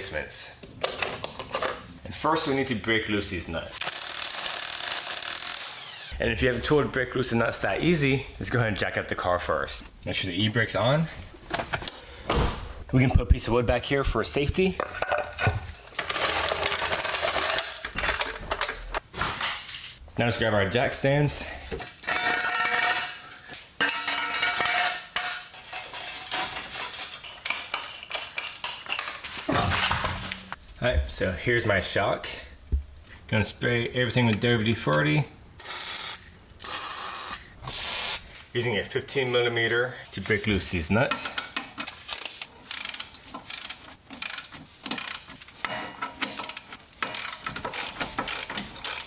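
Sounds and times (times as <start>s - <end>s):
ratchet wrench clicking: 3.8s - 6.2s, 35.6s - 38.2s, 42.2s - 45.3s, 46.2s - 49.0s.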